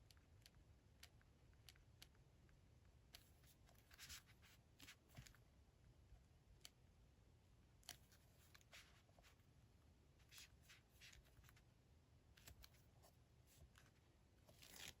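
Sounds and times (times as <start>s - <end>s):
paper rustling: 13.5s - 15.0s.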